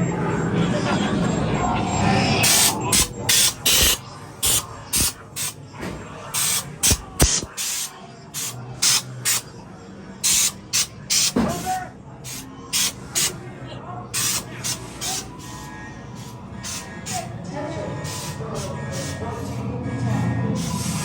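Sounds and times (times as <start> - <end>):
compressed air hissing puffs: 2.4 - 5.6, 6.4 - 9.4, 12.3 - 13.4, 14.2 - 17.3, 18.0 - 19.6, 20.6 - 21.0
sharp clicks: 6.6 - 7.6.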